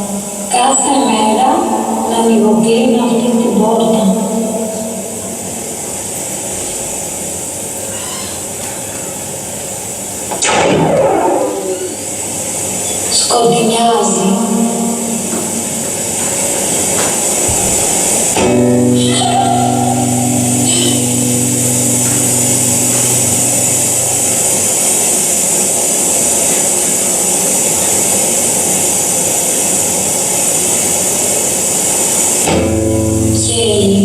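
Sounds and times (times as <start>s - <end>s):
dense hissing drone: 0.0s - 34.0s
low pitched tone with overtones: 10.3s - 15.9s, 17.5s - 25.9s.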